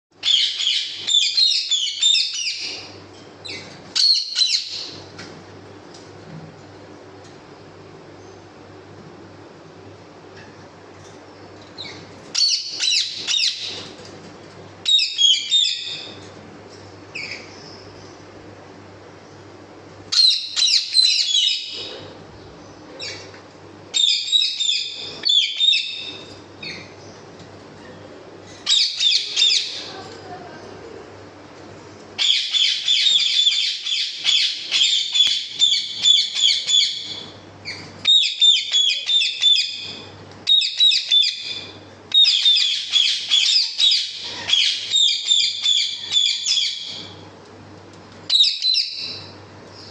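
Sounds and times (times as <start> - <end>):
low steady hum: 0.1 - 49.9
small birds chirping: 0.2 - 5.2, 11.0 - 14.1, 20.1 - 27.6, 31.8 - 47.2, 48.3 - 49.9.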